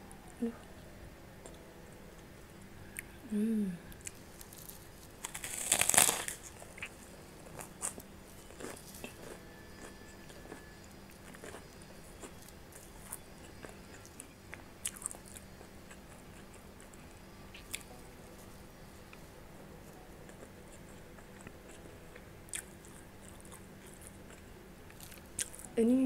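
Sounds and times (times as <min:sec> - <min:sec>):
close-miked chewing: 0:03.9 - 0:19.2, 0:19.8 - 0:25.8
crunching bite into cracker: 0:04.1 - 0:17.0.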